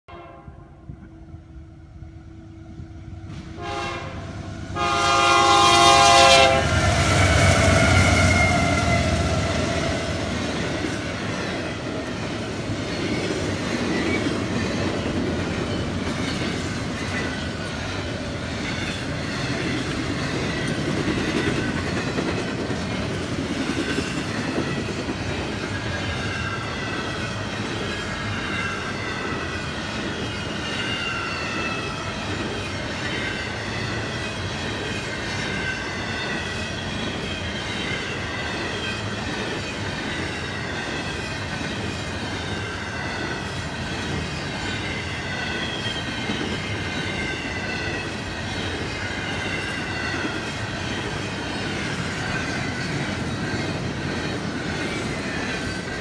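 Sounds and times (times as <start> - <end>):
train horn blasts: 0.1 - 1.0, 2.8 - 10.0
freight train rumbling past: 0.1 - 56.0.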